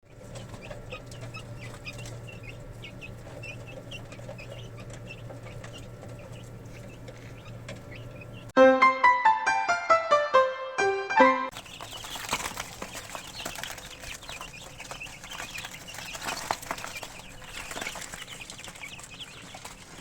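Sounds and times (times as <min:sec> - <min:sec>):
chickens clucking: 0:00.0 - 0:08.6, 0:11.5 - 0:20.0
steady low hum: 0:00.0 - 0:08.6
loud piano music: 0:07.8 - 0:12.4.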